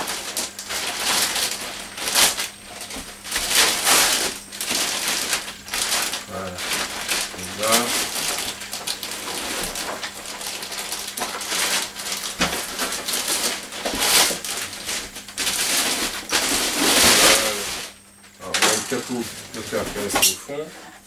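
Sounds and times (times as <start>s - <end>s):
plastic packaging crinkling: 0.0s - 20.3s.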